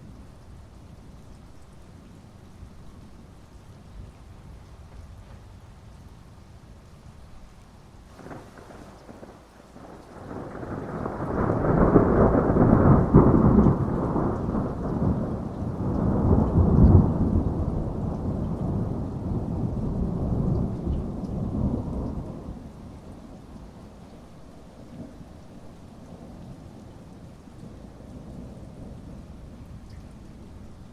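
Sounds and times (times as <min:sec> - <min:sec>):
heavy rain: 0:00.0 - 0:30.9
rolling thunder rumble: 0:08.1 - 0:24.0.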